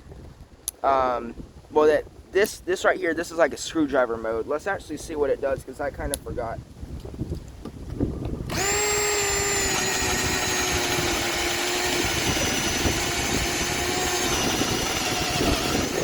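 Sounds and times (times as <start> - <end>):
cordless drill motor whining: 8.5 - 16.0.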